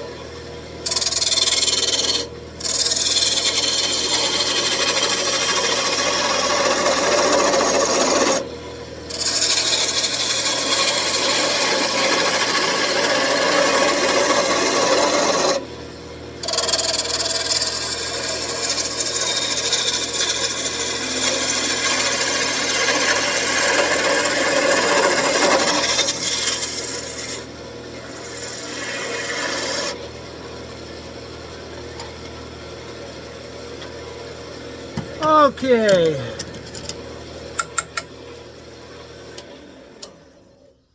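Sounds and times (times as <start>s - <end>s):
gouge scraping spinning wood: 0.9s - 8.4s, 9.1s - 15.6s, 16.4s - 27.4s.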